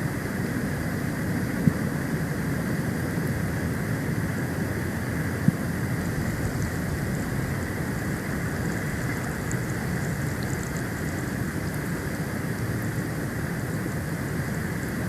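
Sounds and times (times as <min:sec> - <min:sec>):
storm wind on microphone: 0:04.7 - 0:13.4.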